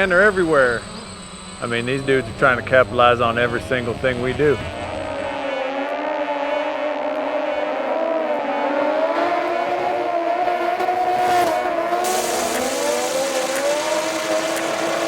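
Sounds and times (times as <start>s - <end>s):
engine running at high revs: 0.0s - 15.0s
hiss: 11.4s - 15.0s.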